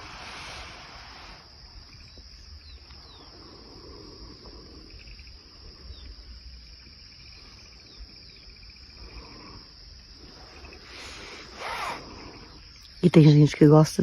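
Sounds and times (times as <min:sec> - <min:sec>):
wind noise rush: 0:00.0 - 0:02.1
insects chirring: 0:00.0 - 0:14.0.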